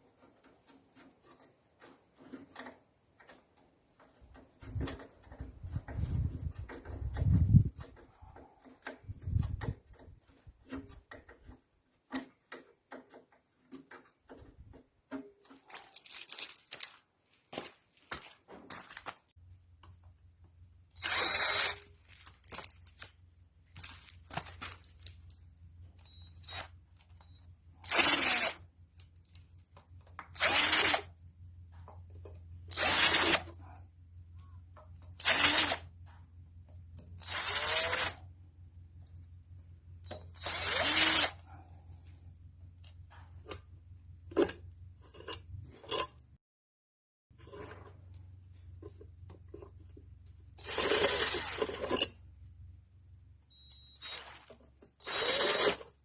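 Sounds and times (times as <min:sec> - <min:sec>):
power drill bursts: 0:20.9 - 0:21.8, 0:27.8 - 0:28.6, 0:30.4 - 0:31.0, 0:32.7 - 0:33.5, 0:35.2 - 0:35.8, 0:37.2 - 0:38.2, 0:40.3 - 0:41.4, 0:50.6 - 0:51.8, 0:53.7 - 0:55.8.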